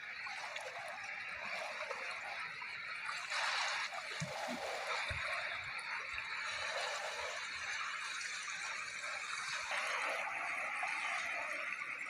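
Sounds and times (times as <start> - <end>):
sea waves washing in: 2.6 - 8.2.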